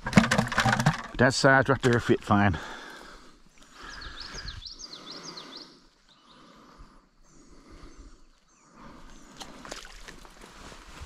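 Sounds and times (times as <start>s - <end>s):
small bird chirping: 3.7s - 6.5s.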